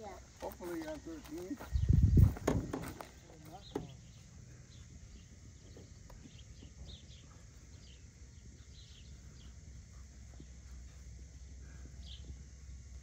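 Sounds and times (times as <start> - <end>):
steady low rumble: 1.6 - 13.0
small bird chirping: 3.4 - 12.4.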